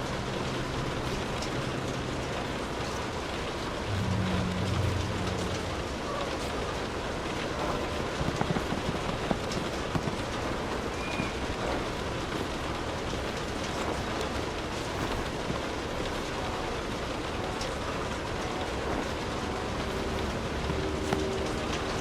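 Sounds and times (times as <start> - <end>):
raindrops ticking on a surface: 0.0 - 22.0
steady rainfall: 0.0 - 22.0.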